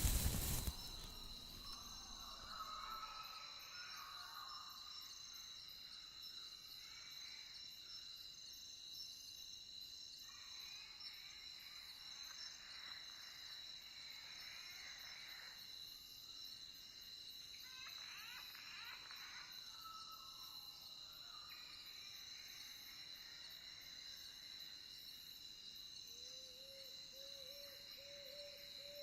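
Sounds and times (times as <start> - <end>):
crickets chirring: 0.0 - 9.9.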